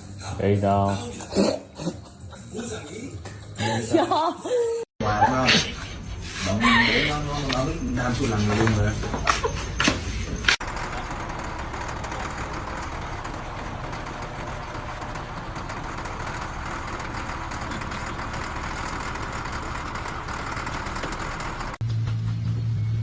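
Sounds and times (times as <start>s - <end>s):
steady mechanical running noise: 10.4s - 21.8s.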